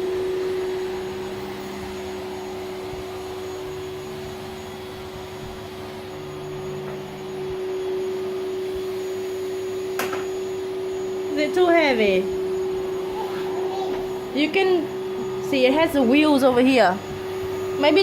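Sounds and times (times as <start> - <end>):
vacuum cleaner running: 0.0 - 18.0.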